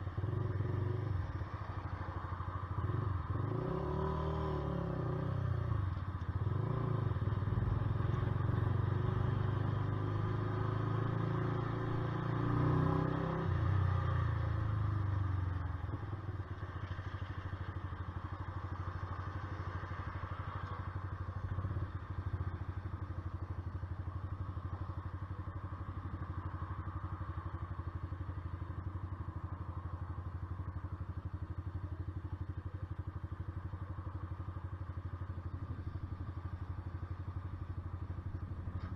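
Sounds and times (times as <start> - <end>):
motorcycle engine idling: 14.3 - 38.9.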